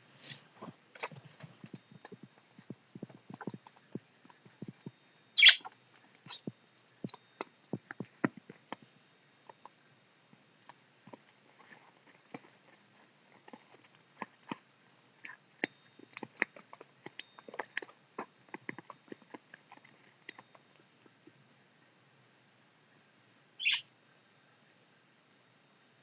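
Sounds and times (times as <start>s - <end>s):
budgies chewing paper: 0.3s - 8.8s, 11.1s - 21.3s.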